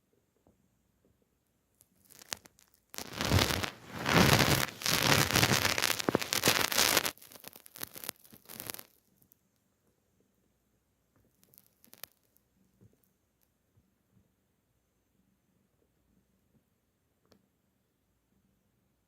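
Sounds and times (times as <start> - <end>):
cat scratching and rustling: 3.0 - 8.8.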